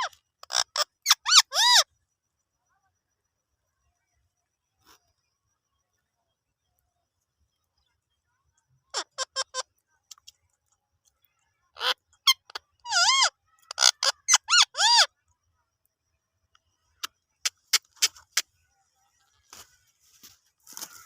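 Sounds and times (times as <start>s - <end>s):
parrot chirping: 0.0s - 1.8s, 8.9s - 10.3s, 11.8s - 15.1s
parrot screeching: 0.5s - 1.8s, 11.8s - 15.1s.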